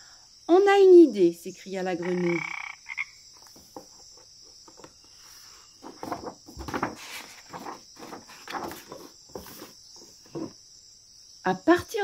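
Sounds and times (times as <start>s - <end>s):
insects chirring: 0.0s - 12.0s
paper page turning and rustling: 5.8s - 10.5s.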